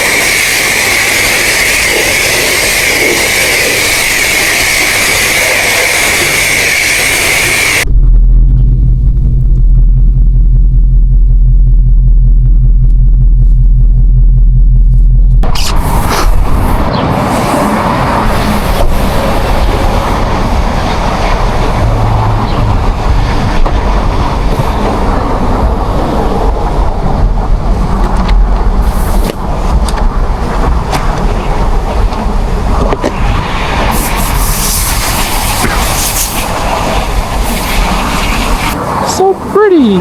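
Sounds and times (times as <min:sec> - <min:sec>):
car engine rumble: 0:03.6 - 0:39.0
tyre and wind noise: 0:12.2 - 0:39.1.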